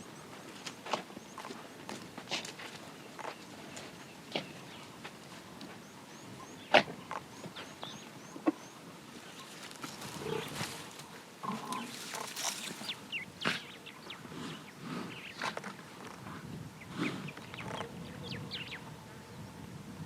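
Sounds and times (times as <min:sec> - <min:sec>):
bird chirping: 0:05.8 - 0:15.4, 0:16.8 - 0:19.4
animal grunting: 0:09.8 - 0:15.3.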